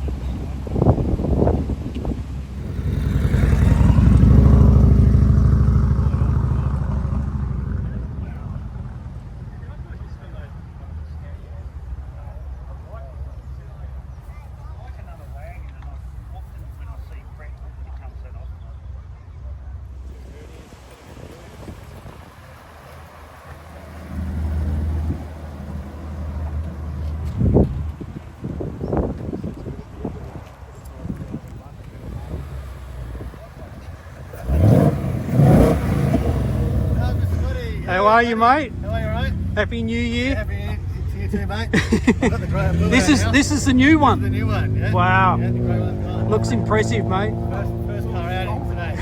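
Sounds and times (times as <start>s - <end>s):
car driving past: 2.1s - 12.1s, 19.9s - 49.0s.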